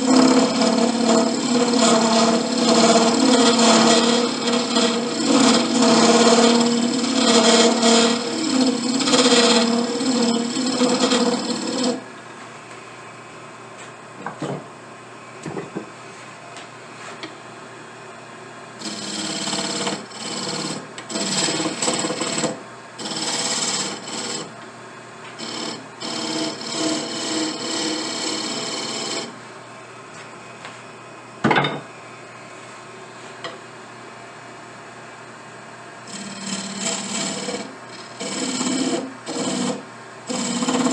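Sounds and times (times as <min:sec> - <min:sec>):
rasping strokes on wood: 0:00.0 - 0:12.0, 0:18.8 - 0:24.5, 0:25.4 - 0:29.3, 0:36.1 - 0:40.9.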